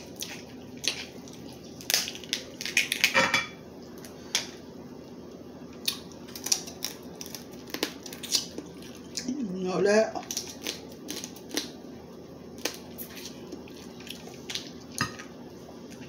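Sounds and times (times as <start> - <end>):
crab shells cracking by hand: 0.2 - 3.2, 5.8 - 9.2, 10.2 - 11.8, 12.6 - 14.8.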